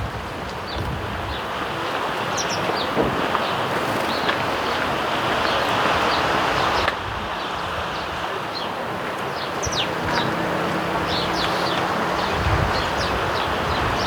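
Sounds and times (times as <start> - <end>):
sparrows chirping: 0.6 - 14.0
steady rushing background: 9.4 - 14.0.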